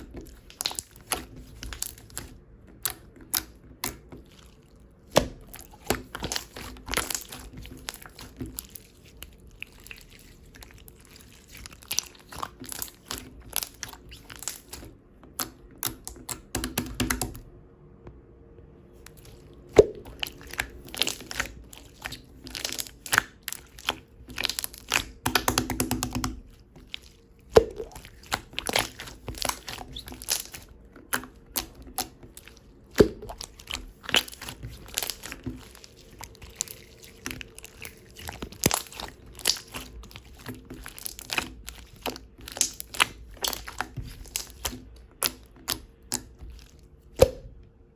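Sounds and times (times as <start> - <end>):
slime being squished by hand: 0.0 - 17.4, 19.0 - 47.6
air bubble pops: 19.8 - 20.3, 27.6 - 28.0, 47.2 - 47.5
sticky clicks and crackles: 20.0 - 46.9.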